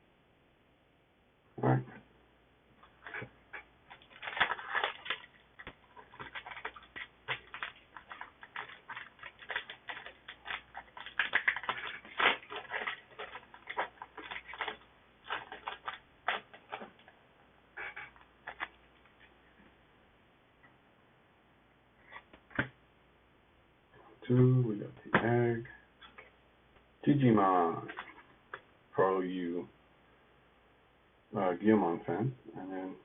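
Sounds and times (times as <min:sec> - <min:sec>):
cards being handled: 0:02.8 - 0:17.1, 0:17.8 - 0:19.3
foil wrapper crinkling and tearing: 0:02.8 - 0:17.2, 0:17.8 - 0:19.3.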